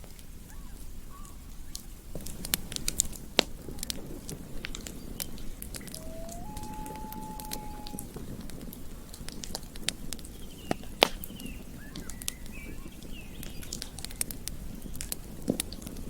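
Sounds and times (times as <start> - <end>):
campfire crackling and popping: 1.7 - 6.1, 6.7 - 16.0
faint chirping calls: 5.0 - 8.1
held whistle-like call: 5.8 - 8.1.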